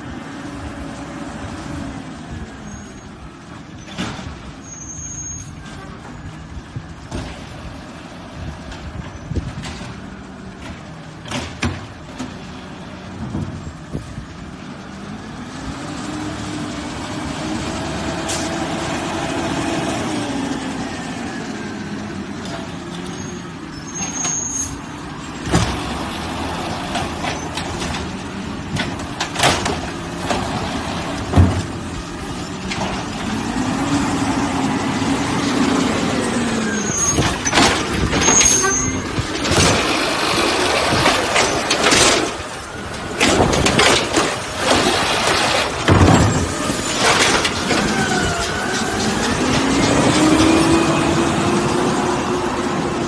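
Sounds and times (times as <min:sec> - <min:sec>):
garbage truck engine revving: 0:05.6 - 0:53.0
metal knocks and bangs: 0:26.8 - 0:33.4, 0:37.1 - 0:48.0.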